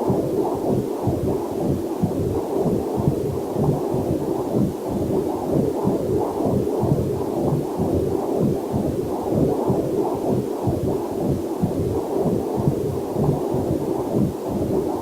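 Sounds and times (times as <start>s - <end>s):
heartbeat on doppler monitor: 0.0s - 15.0s.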